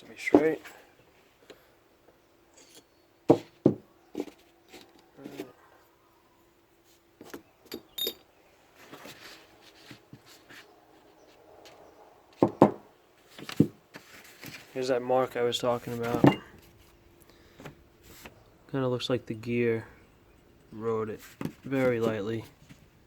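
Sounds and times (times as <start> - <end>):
metal parts clicking and knocking: 7.6 - 8.3.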